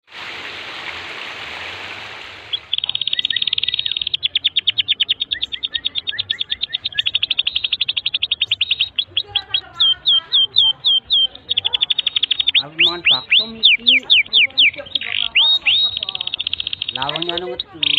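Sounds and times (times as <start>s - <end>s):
canary singing trill: 2.5s - 17.9s.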